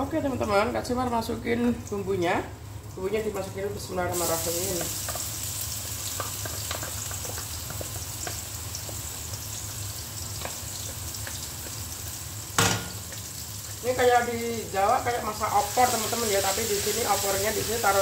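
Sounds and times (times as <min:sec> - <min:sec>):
spice paste sizzling in oil: 0:02.8 - 0:18.0
sharp knock: 0:12.6 - 0:13.0.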